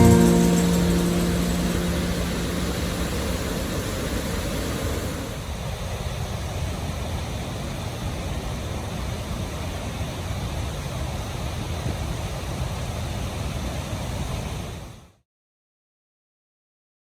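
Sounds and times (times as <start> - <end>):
background music: 0.0 - 3.4
waterfall rushing: 0.0 - 5.6.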